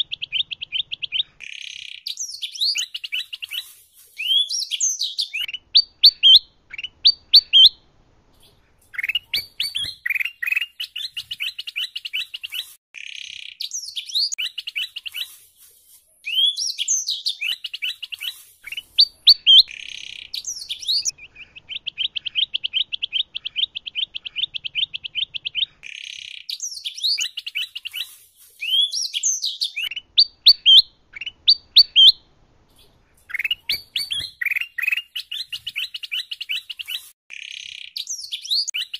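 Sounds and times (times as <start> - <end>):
songbirds whistling and chirping: 0.0 - 7.8, 8.4 - 15.4, 16.2 - 32.2, 32.8 - 38.9.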